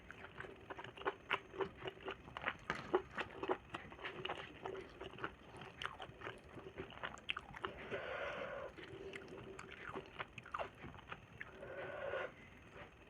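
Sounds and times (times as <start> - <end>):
person chewing food: 0.0 - 11.7.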